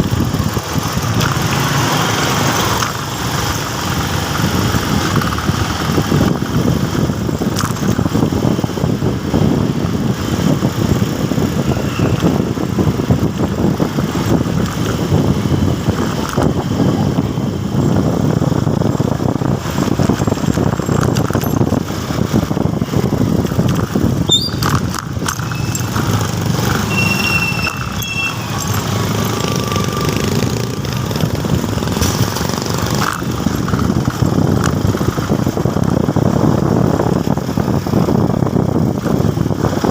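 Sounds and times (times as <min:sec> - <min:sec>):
motorcycle engine running: 0:00.0 - 0:39.9
wind rushing over microphone: 0:00.0 - 0:39.9
brief high squeaks: 0:24.3 - 0:24.8, 0:26.8 - 0:28.8.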